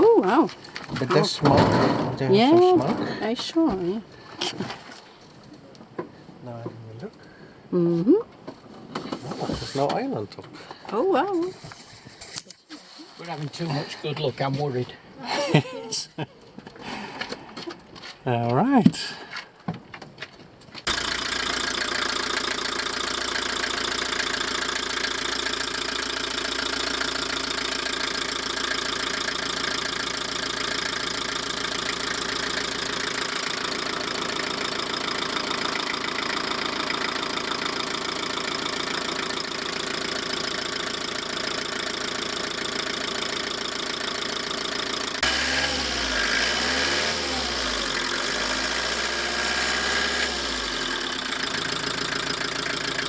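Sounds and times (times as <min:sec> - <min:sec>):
van engine idling: 0:00.1 - 0:07.7, 0:20.9 - 0:53.0.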